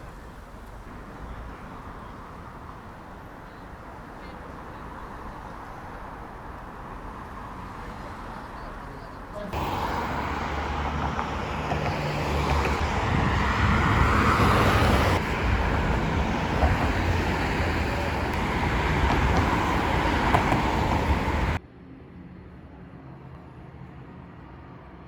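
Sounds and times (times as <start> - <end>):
road traffic rumble: 0.0 - 21.6.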